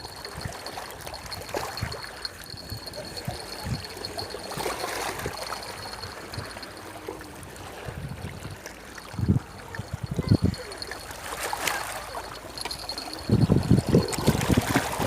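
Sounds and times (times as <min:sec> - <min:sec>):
water trickling: 0:00.0 - 0:15.0
faint high tone: 0:09.1 - 0:14.2.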